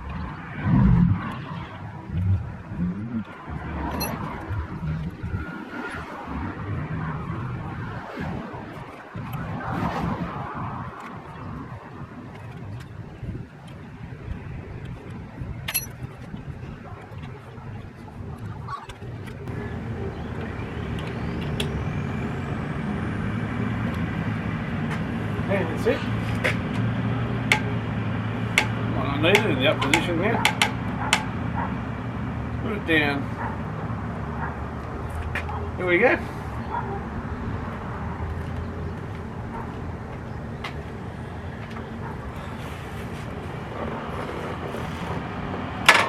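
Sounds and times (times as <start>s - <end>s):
low background rumble and hum: 0.0s - 9.1s
thin rising whine: 0.0s - 11.8s
vehicle engine rumble: 0.0s - 46.0s.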